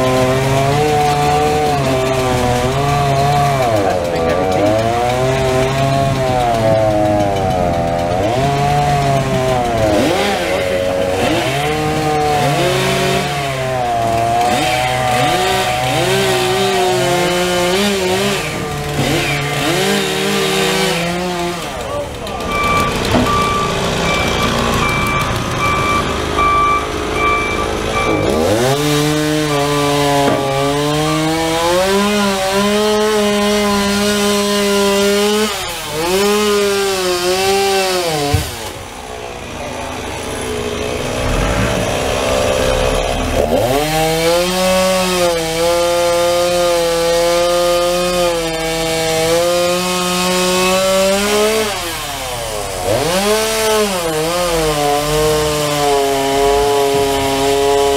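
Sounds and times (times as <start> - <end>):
chainsaw revving and cutting: 0.0 - 57.9
reversing alarm beeping: 22.4 - 28.8.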